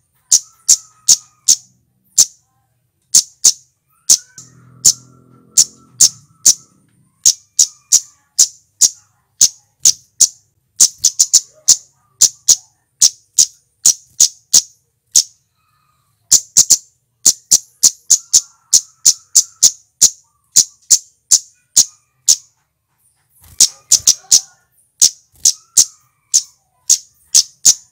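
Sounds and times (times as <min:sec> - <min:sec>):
bird calling high notes: 0:03.2 - 0:09.0.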